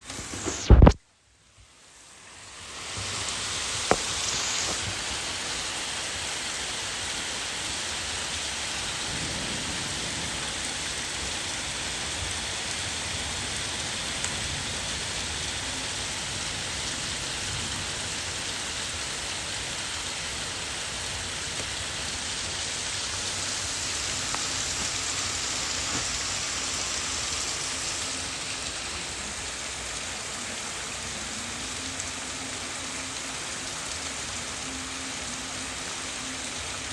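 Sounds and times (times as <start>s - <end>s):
heavy rain splashing: 1.8s - 36.9s
sharp tap: 3.9s - 4.8s.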